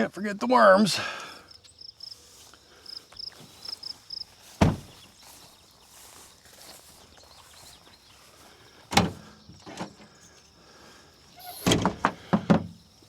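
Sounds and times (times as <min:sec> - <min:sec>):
gear clunking and knocking: 0:11.6 - 0:12.8.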